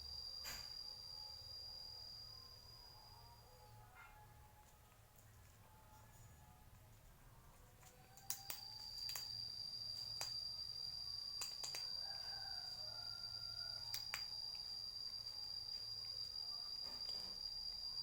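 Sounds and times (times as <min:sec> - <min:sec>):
cricket trilling: 0:00.0 - 0:04.1, 0:07.9 - 0:18.0
sharp clicks: 0:07.8 - 0:09.4, 0:11.4 - 0:12.0, 0:13.8 - 0:14.7.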